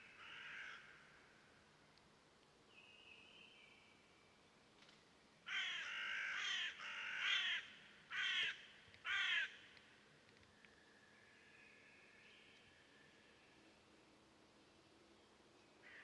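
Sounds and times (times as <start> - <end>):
crow cawing: 0.1 - 1.1, 5.5 - 9.6.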